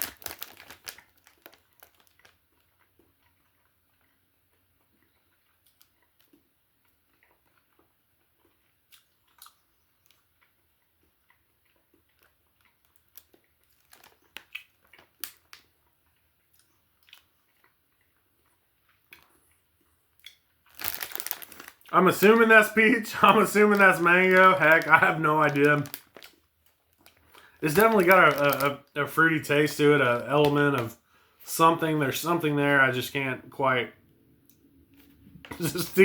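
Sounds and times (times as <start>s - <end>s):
faint chewing with mouth clicks: 0.0s - 22.4s, 24.0s - 28.7s.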